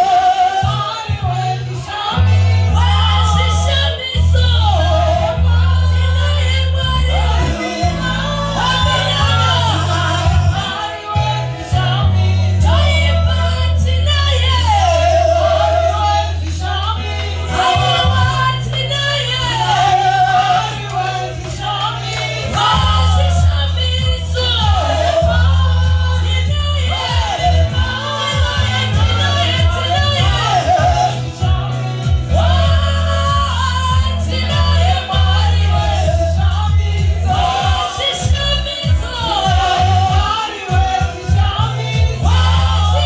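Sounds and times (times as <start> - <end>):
choir and congregation singing: 0.0 - 43.0
sustained bass notes: 0.0 - 43.0.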